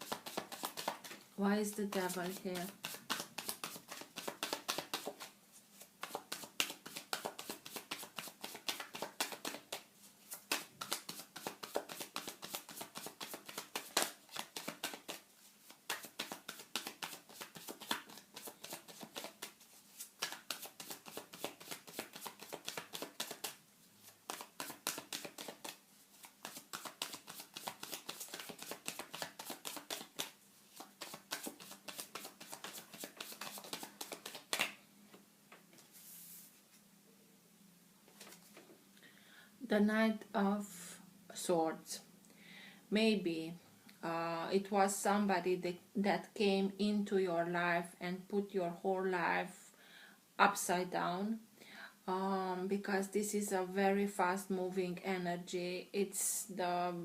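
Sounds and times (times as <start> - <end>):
cards being shuffled: 0.0 - 1.2, 1.8 - 34.8, 38.1 - 38.6.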